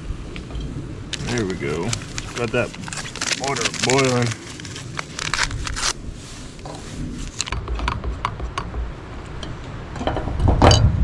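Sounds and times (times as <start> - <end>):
low rumble: 0.0 - 11.0
clatter of cooking gear: 1.1 - 5.9.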